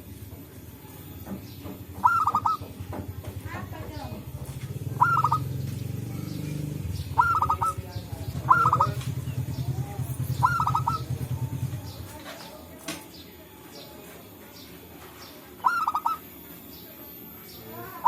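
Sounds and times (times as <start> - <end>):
dove cooing: 2.0 - 2.9, 4.2 - 11.9, 15.6 - 16.4.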